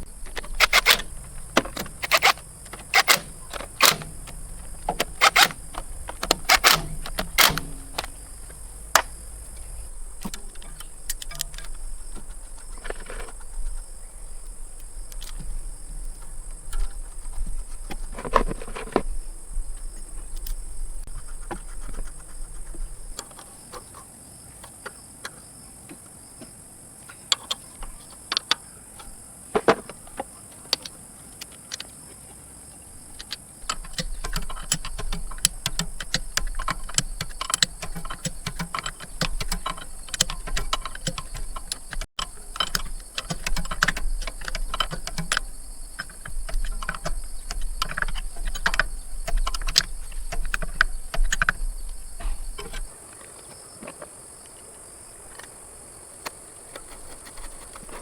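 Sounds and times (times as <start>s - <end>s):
sharp clicks and knocks: 0.0s - 19.2s, 33.2s - 53.0s.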